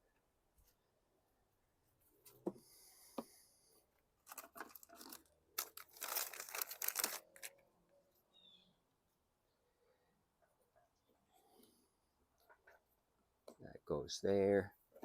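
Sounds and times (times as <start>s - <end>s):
crinkling and rustling: 4.2s - 7.6s.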